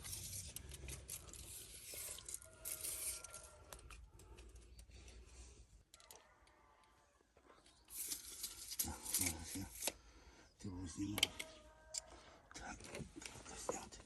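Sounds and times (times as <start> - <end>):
rustling and scraping: 0.0 - 6.3, 7.3 - 9.9.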